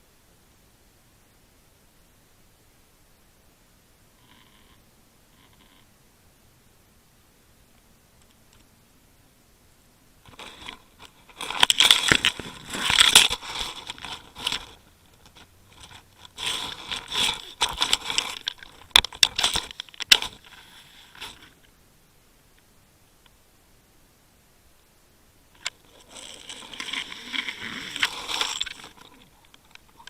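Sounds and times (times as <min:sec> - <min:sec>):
rustling and scraping: 0:10.2 - 0:21.7, 0:25.6 - 0:30.0.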